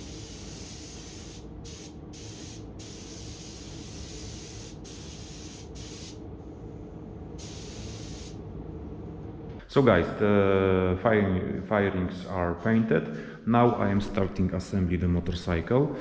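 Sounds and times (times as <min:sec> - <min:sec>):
paint spray gun hissing: 0:00.0 - 0:06.2, 0:07.4 - 0:08.4
steady low rumble: 0:00.0 - 0:09.7.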